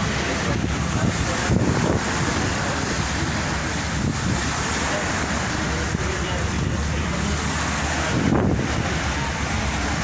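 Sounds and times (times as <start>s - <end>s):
low rumbling rush: 0.0s - 10.0s
wind buffeting microphone: 0.0s - 10.0s.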